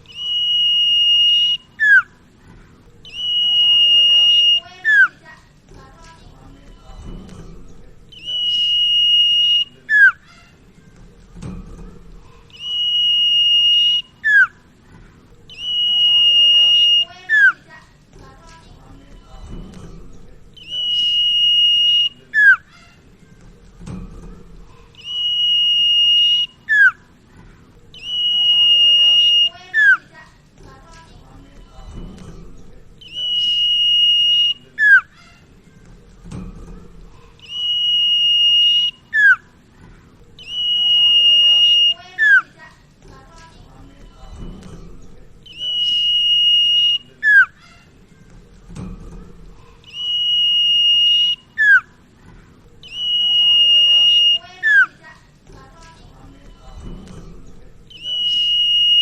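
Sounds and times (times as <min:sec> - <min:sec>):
bird whistling: 0:00.0 - 0:02.2, 0:03.0 - 0:05.3, 0:08.1 - 0:10.3, 0:12.5 - 0:14.6, 0:15.5 - 0:17.7, 0:20.6 - 0:22.9, 0:25.0 - 0:27.0, 0:27.9 - 0:30.1, 0:33.0 - 0:35.3, 0:37.4 - 0:39.6, 0:40.4 - 0:42.6, 0:45.4 - 0:47.8, 0:49.8 - 0:52.0, 0:52.8 - 0:55.0, 0:57.9 - 0:59.0.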